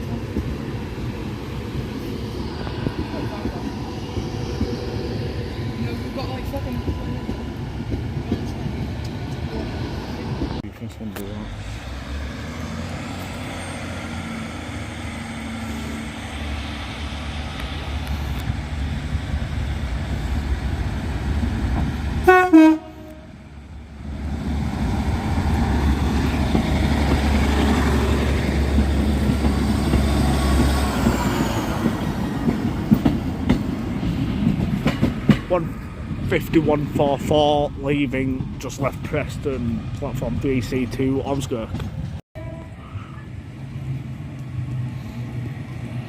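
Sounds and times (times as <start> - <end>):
train diesel engine: 0.0 - 46.0
train horn toot: 22.2 - 23.3.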